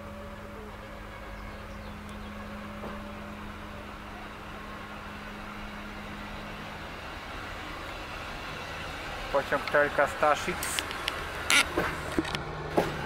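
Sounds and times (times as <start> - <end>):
constant low hum: 0.0 - 13.0
train wheels rumbling on rail: 0.0 - 13.0.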